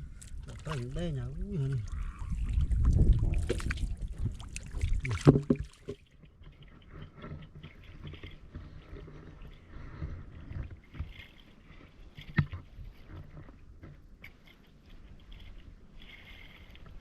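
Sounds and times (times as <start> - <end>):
muddy water sloshing: 0.0 - 17.0
sharp splash or knock: 4.6 - 6.0.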